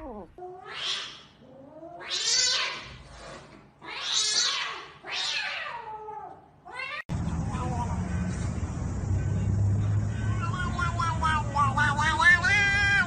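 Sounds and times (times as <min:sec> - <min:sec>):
cat yowling: 0:00.0 - 0:02.8.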